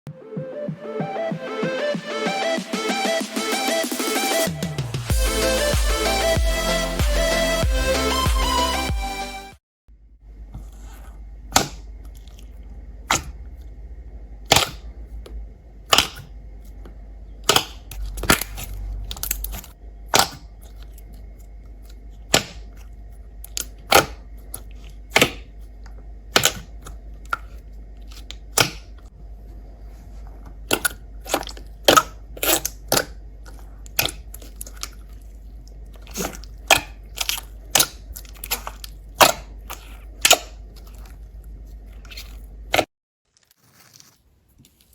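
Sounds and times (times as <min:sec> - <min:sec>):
steady low hum: 0:09.9 - 0:42.9.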